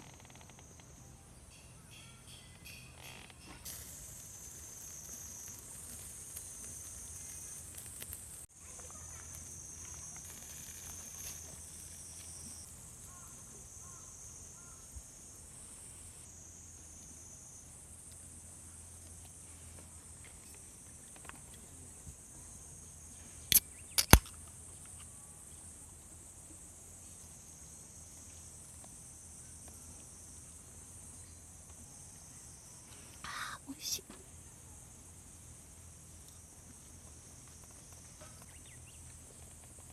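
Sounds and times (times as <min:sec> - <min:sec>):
insects trilling: 0:00.0 - 0:39.9
sharp clicks or knocks: 0:23.5 - 0:24.4.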